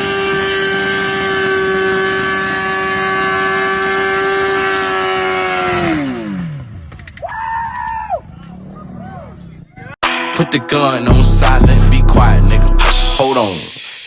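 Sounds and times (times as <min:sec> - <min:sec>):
motorcycle engine revving high: 0:00.0 - 0:06.9.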